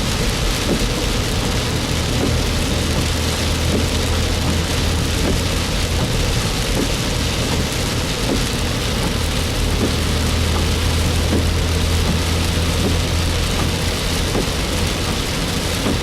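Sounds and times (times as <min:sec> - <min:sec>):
rain on a moving car: 0:00.0 - 0:16.0
road and engine rumble: 0:00.0 - 0:16.0.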